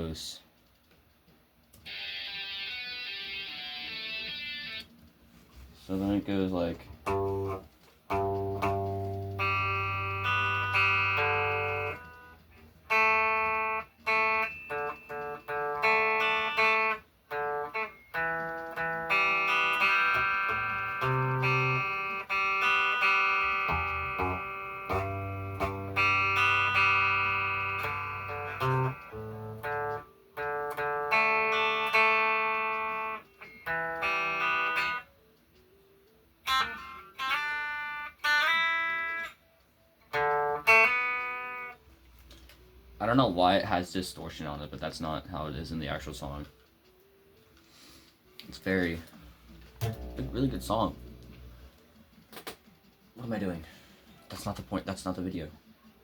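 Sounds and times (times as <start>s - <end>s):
distorted electric guitar strumming chords: 1.8s - 4.9s, 6.9s - 35.1s, 36.4s - 39.4s, 40.1s - 41.8s, 49.7s - 51.9s.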